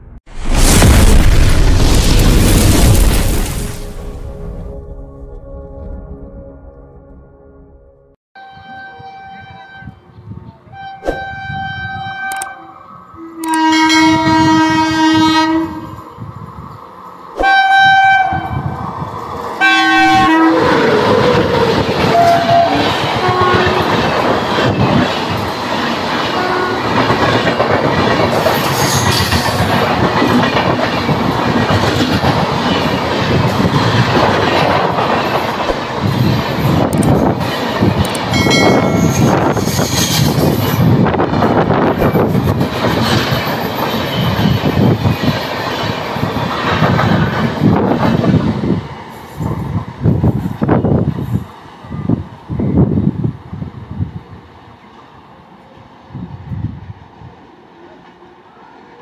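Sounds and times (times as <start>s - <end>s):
train horn blasts: 4.3s - 16.0s, 17.4s - 18.8s, 19.6s - 21.2s, 22.0s - 24.0s, 26.3s - 27.0s
train coaches rattling over rails: 19.2s - 51.8s.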